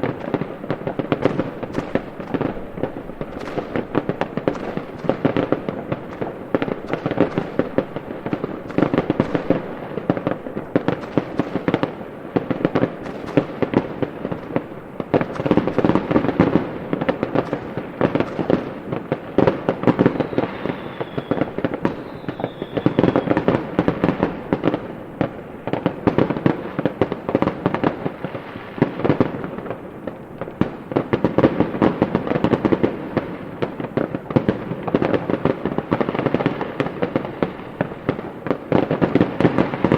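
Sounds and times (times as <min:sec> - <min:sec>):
fireworks bangs and crackles: 0:00.0 - 0:39.9
firework whistles: 0:19.8 - 0:24.5.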